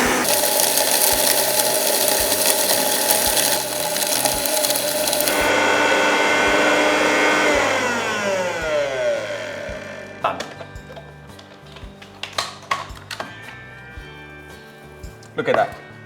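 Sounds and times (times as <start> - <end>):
mixer grinder grinding spices: 0.0 - 10.2.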